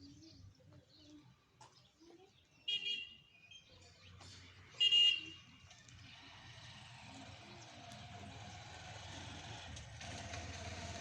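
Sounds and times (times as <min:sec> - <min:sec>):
vehicle noise: 0:04.1 - 0:11.0.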